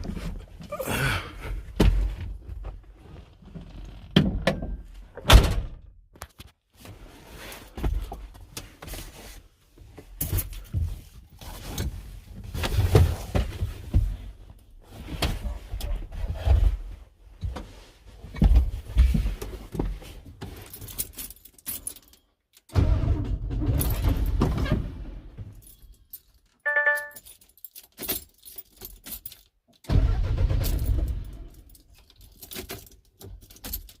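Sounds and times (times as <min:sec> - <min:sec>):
short beep: 0:26.7 - 0:27.2
truck engine cranking: 0:29.9 - 0:31.7.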